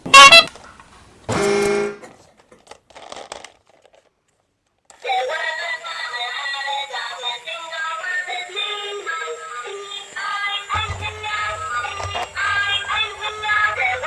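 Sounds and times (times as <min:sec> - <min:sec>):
music: 0:05.0 - 0:14.0
lower held tone: 0:10.7 - 0:14.0
shrill blast sound effect: 0:10.7 - 0:14.0.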